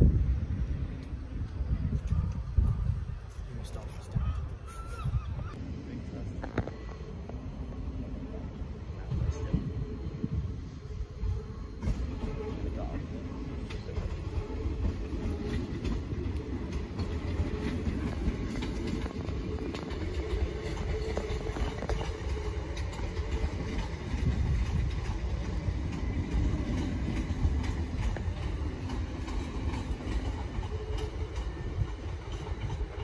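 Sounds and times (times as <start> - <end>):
train low rumble: 0.0 - 33.0
wheels clicking over rail joints: 11.8 - 33.0.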